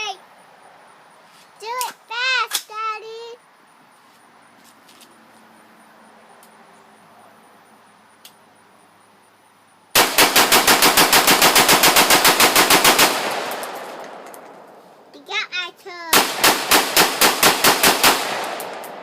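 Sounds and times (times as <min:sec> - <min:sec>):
rapid gunfire: 0:10.0 - 0:14.3, 0:16.1 - 0:19.0
gunshot echo: 0:16.2 - 0:19.0.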